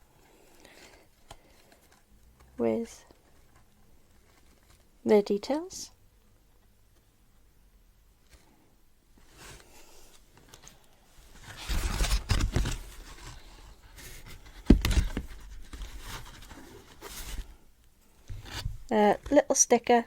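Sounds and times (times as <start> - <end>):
paper and packaging rustling: 0.2 - 5.0, 9.2 - 17.6, 18.2 - 19.5.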